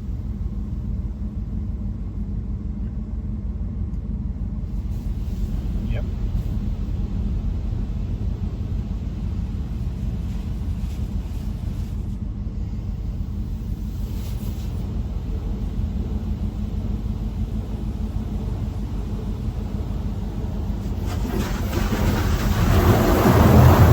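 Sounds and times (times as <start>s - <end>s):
low rumble inside truck cab: 0.0s - 23.9s
spray hissing over vehicle: 8.4s - 12.2s, 12.8s - 23.9s.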